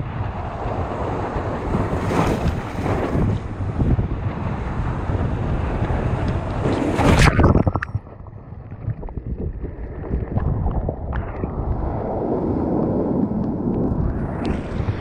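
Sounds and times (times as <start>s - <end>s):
surf rushing: 0.0s - 7.8s
wind buffeting microphone: 0.0s - 15.0s.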